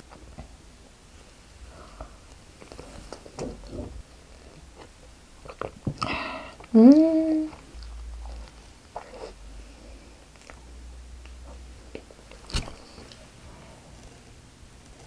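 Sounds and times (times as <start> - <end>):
chewing soft bread: 1.6 - 6.8, 7.4 - 15.0
breathy sound: 6.0 - 6.7.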